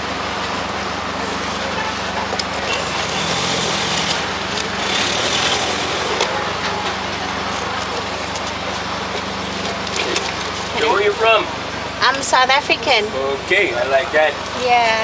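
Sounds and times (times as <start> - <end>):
small engine humming: 2.4 - 8.5.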